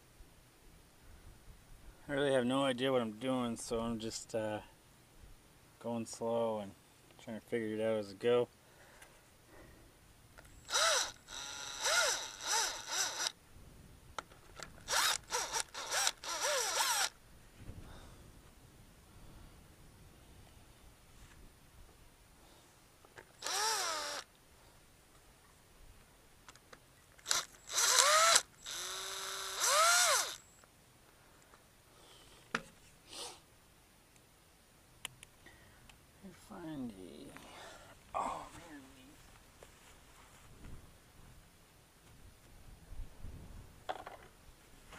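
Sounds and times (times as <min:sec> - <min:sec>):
power tool motor revving: 0:10.7 - 0:13.4, 0:14.9 - 0:17.1, 0:23.4 - 0:24.2, 0:27.2 - 0:30.4.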